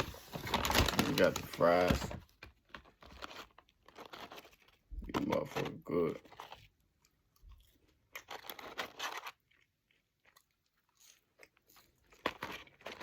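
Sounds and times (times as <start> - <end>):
person chewing crunchy fries: 2.6 - 13.0.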